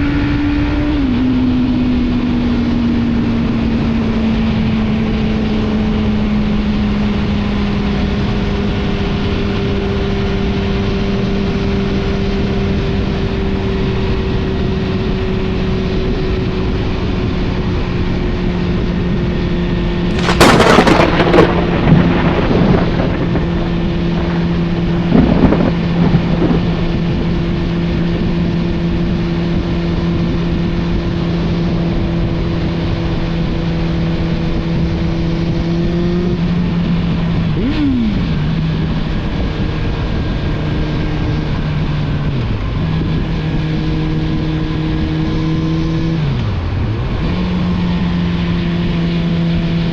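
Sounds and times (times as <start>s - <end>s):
motorcycle engine running: 0.0s - 49.9s
loud exhaust crackling bursts: 20.1s - 24.5s.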